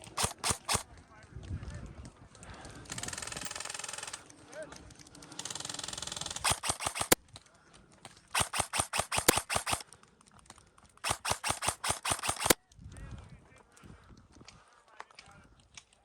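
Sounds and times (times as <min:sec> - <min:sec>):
airsoft gun shots: 0:00.0 - 0:00.8, 0:06.4 - 0:07.2, 0:08.4 - 0:09.8, 0:11.0 - 0:12.6.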